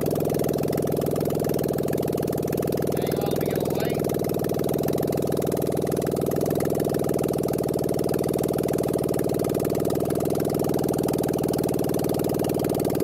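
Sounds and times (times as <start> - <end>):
engine idling with loud exhaust beat: 0.0 - 13.0.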